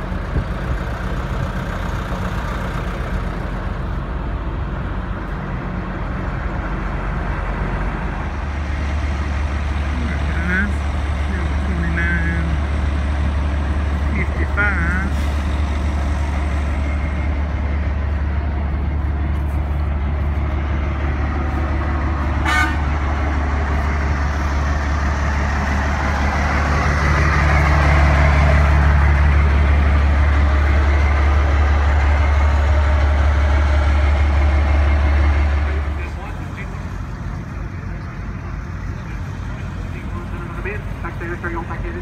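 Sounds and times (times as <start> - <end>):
vehicle engine rumbling: 0.0 - 42.0
short horn toot: 22.4 - 22.9.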